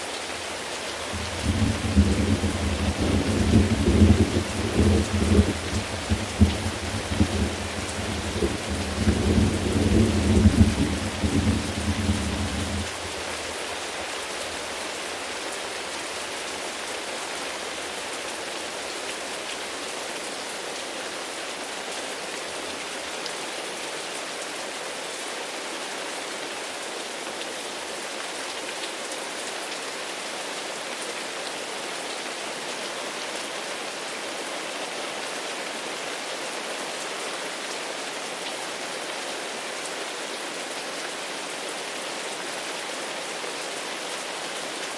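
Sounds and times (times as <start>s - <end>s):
steady rain: 0.0s - 44.9s
thunder rumbling: 1.1s - 13.2s.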